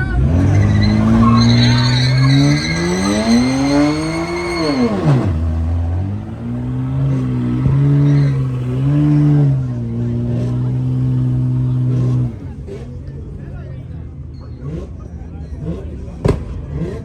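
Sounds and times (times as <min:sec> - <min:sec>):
tyre squeal: 0:00.0 - 0:09.6
car engine revving: 0:00.0 - 0:13.1, 0:14.6 - 0:17.0.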